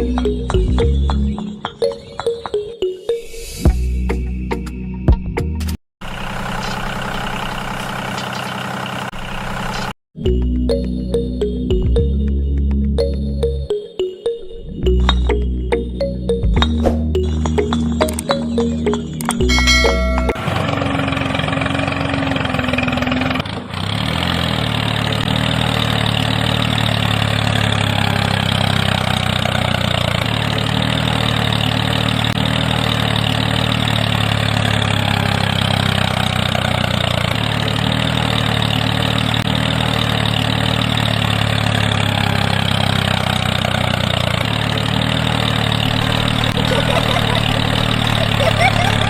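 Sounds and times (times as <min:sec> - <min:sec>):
small motor humming: 0:44.2 - 0:49.0.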